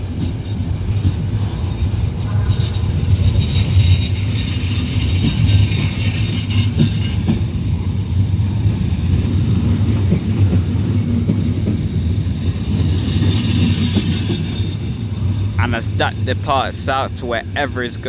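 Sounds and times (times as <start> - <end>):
wheels clicking over rail joints: 0.0 - 17.6
train running rumble: 0.0 - 18.0.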